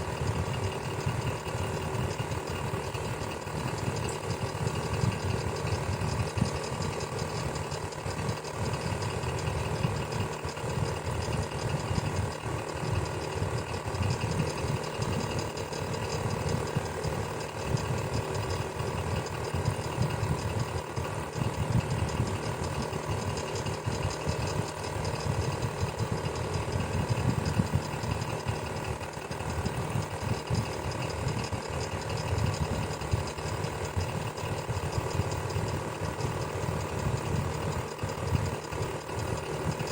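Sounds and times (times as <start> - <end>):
electric fan humming: 0.0 - 39.9.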